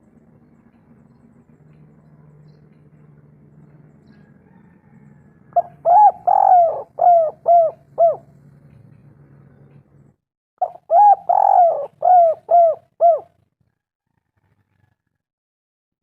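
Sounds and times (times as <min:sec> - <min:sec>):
faint low hum: 0:00.0 - 0:13.3
dove cooing: 0:05.5 - 0:08.4, 0:10.6 - 0:13.4.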